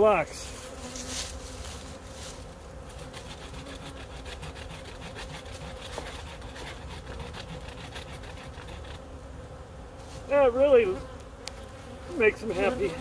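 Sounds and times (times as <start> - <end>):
honey bees humming: 0.0 - 13.0
hand tool scraping wood: 0.6 - 9.1, 12.2 - 13.0.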